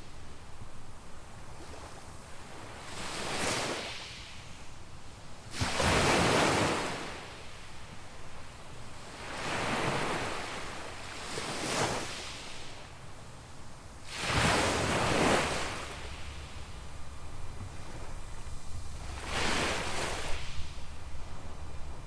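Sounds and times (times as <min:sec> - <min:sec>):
small waves breaking on beach: 0:00.0 - 0:22.0
low wind rumble: 0:12.7 - 0:22.0.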